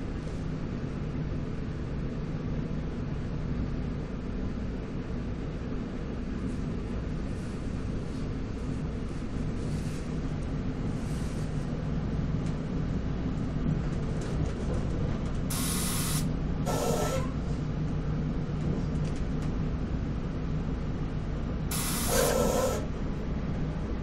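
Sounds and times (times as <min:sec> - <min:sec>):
train interior rumble: 0:00.0 - 0:24.0
short bursts of hiss: 0:15.5 - 0:17.2, 0:21.7 - 0:22.9.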